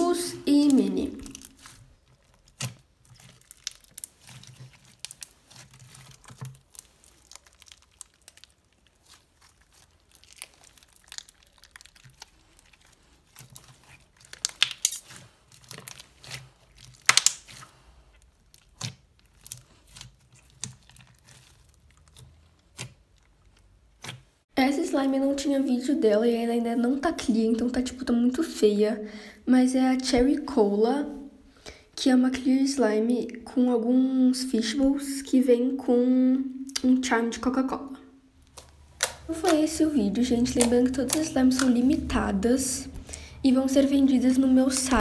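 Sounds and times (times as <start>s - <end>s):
slime sticky clicks: 14.3s - 17.6s, 38.5s - 39.8s, 40.4s - 42.0s.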